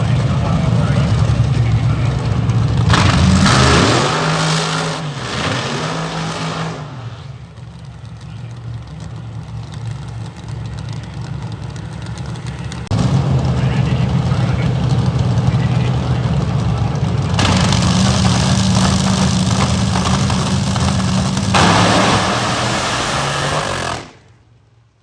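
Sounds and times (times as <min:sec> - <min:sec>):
vehicle engine revving: 0:00.0 - 0:24.4.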